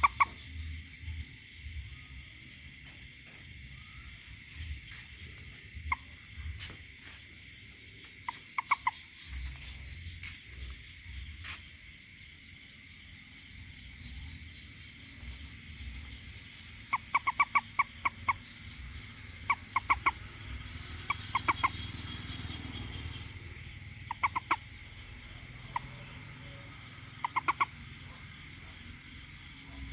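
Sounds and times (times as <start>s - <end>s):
steady low rumble: 0.0s - 11.5s
toad croaking: 0.0s - 11.7s, 13.8s - 29.9s.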